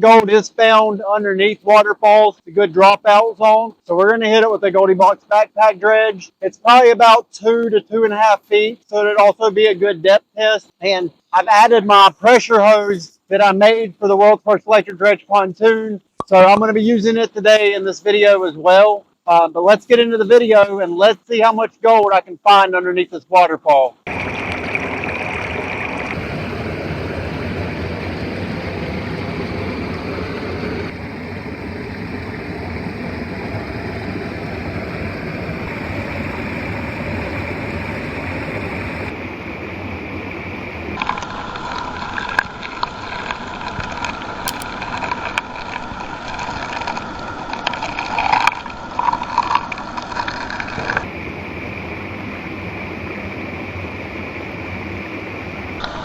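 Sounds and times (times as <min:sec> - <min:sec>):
waterfall rushing water: 0:24.1 - 0:39.2, 0:51.0 - 0:56.0
faint whine: 0:24.1 - 0:49.7, 0:51.0 - 0:56.0.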